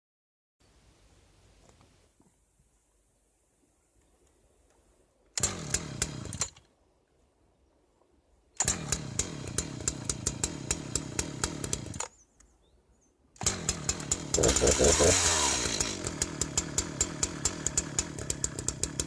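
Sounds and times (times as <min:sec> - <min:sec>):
chainsaw engine running: 0:05.4 - 0:06.6, 0:08.6 - 0:12.1, 0:13.4 - 0:19.0.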